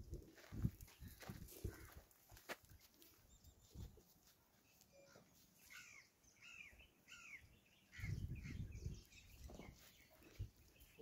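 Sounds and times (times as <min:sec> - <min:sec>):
faint bird chirps: 0:04.6 - 0:11.0.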